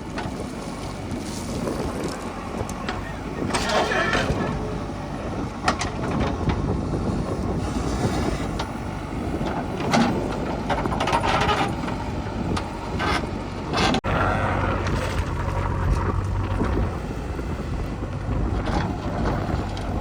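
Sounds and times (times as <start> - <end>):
heavy diesel engines running: 0.0 - 20.0.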